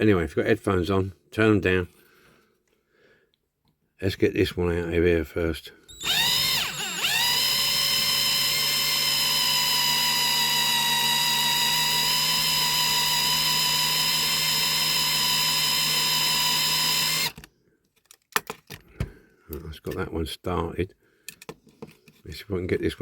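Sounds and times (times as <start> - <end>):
electric drill whining: 5.9 - 17.4.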